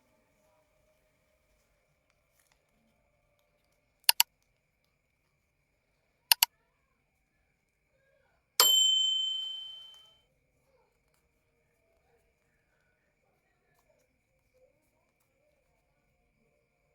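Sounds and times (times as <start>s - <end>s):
bright bell ding: 8.6s - 10.1s.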